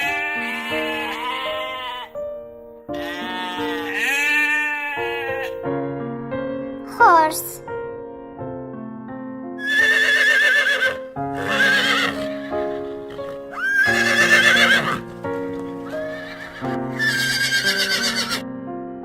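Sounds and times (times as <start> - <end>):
horse neighing: 0.0 - 2.1, 3.0 - 5.6, 9.6 - 18.4
gentle piano tune: 0.0 - 4.1, 4.9 - 9.6, 11.0 - 19.0.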